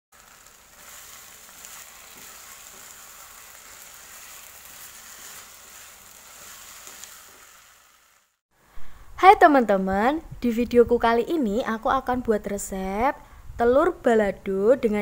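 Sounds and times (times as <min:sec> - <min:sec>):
paste sizzling in hot oil: 0:00.1 - 0:08.4.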